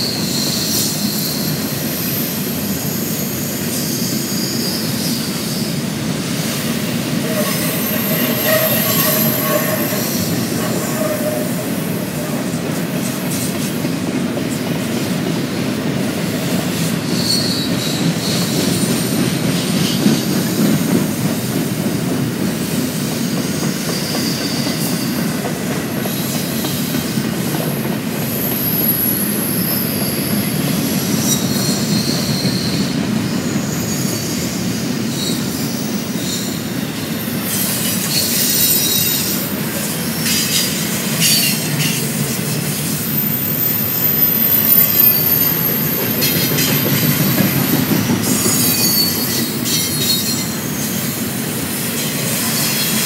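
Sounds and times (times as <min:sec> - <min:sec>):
train cars rumbling: 0:00.0 - 0:53.0
high-pitched wheel squeals: 0:07.2 - 0:11.8, 0:17.0 - 0:19.1, 0:30.9 - 0:39.6, 0:43.0 - 0:51.2.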